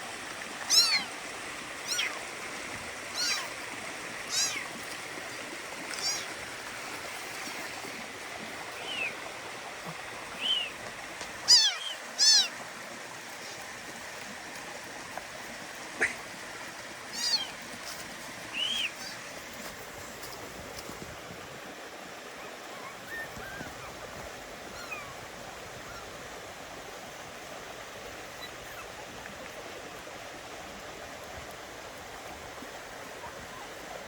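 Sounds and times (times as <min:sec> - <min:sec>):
stream rushing: 0:00.0 - 0:34.0
kittens mewing: 0:03.2 - 0:03.5, 0:04.3 - 0:04.7, 0:05.9 - 0:06.4, 0:11.5 - 0:12.5, 0:17.1 - 0:17.6.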